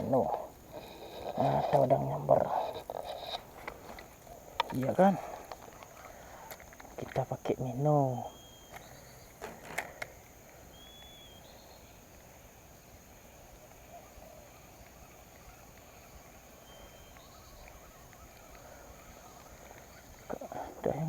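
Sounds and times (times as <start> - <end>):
high insect drone: 0.0 - 21.0
sharp clicks: 8.6 - 11.2.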